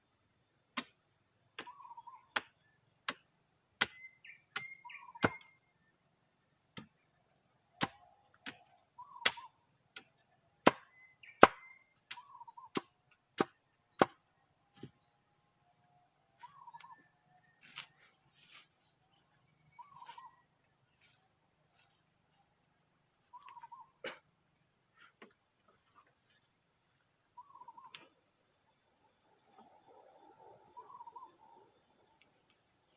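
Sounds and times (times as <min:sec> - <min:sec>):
insects droning: 0:00.0 - 0:32.9
sharp strikes on wood: 0:10.0 - 0:14.2.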